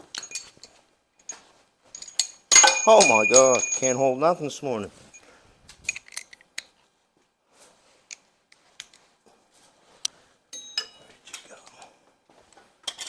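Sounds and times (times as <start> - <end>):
clicks and clinks of hand tools: 2.0 - 4.0
ringing clink of metal on metal: 2.0 - 4.0.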